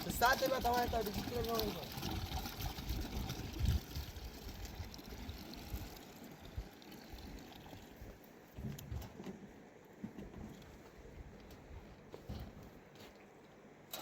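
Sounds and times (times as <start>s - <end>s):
running water trickling: 0.0s - 9.0s.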